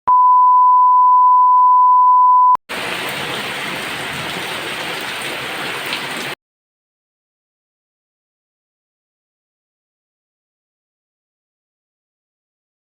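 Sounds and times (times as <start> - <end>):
steady electronic beep: 0.0 - 2.6
heavy rain hissing: 2.7 - 6.4.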